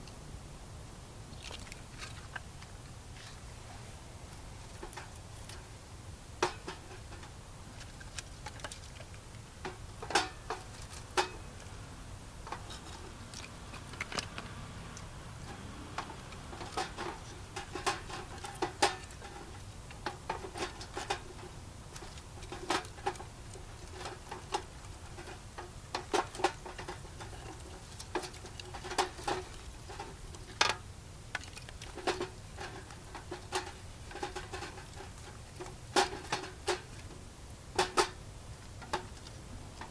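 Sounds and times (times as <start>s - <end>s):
low steady hum: 0.0s - 39.9s
sharp clicks and light knocks: 12.4s - 39.9s.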